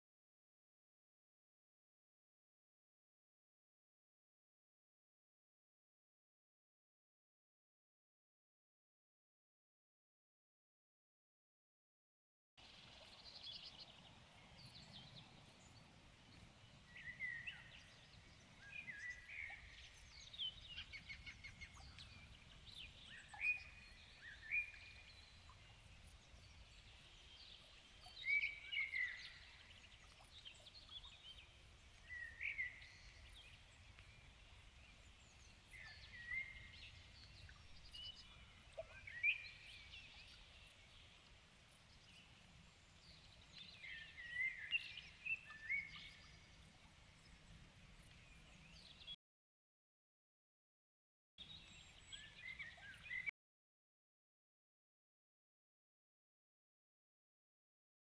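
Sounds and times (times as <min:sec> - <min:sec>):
faint steady hiss: 0:12.6 - 0:49.1
songbirds singing: 0:12.6 - 0:49.2, 0:51.4 - 0:53.3.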